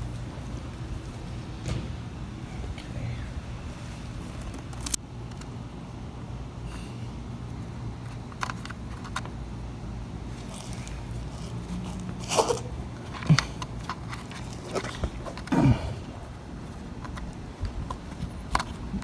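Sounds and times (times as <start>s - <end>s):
steady low hum: 0.0s - 19.0s
tools and parts clicking and rattling: 8.0s - 9.4s, 10.4s - 15.5s.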